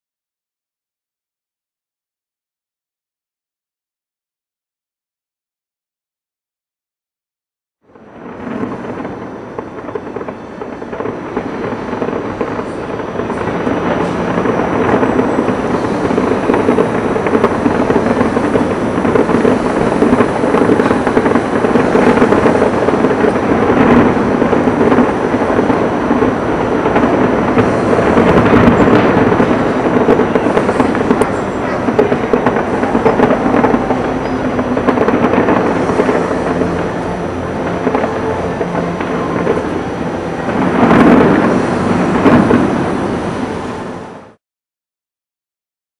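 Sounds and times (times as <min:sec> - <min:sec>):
distant fireworks crackling rumble: 0:07.9 - 0:44.4.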